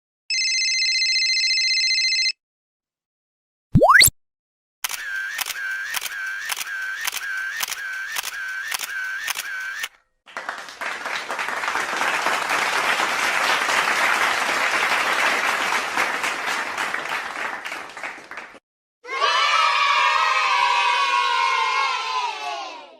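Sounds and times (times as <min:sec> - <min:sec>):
crowd clapping: 0:06.0 - 0:18.6.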